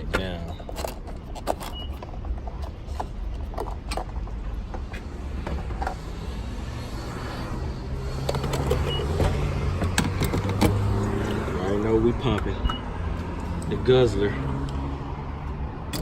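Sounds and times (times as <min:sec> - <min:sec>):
clicks and knocks: 0:08.2 - 0:10.9.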